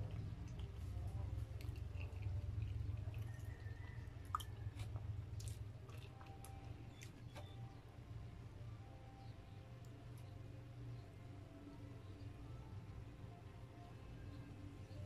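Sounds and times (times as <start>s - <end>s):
person chewing and smacking: 0.0s - 7.8s
low steady hum: 0.0s - 15.0s.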